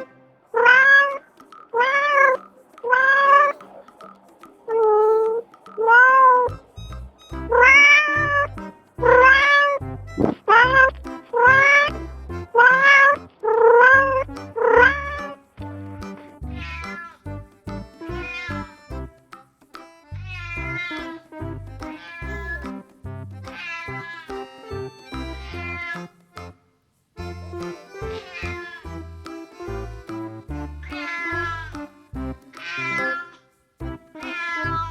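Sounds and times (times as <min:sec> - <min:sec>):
background music with beat: 0:00.0 - 0:26.6, 0:27.2 - 0:34.9
cat meowing: 0:01.8 - 0:03.6, 0:16.5 - 0:17.2, 0:18.2 - 0:18.7, 0:20.3 - 0:21.2, 0:21.9 - 0:22.7, 0:23.5 - 0:26.1, 0:28.1 - 0:28.9, 0:30.8 - 0:31.8, 0:32.5 - 0:33.4, 0:34.1 - 0:34.9.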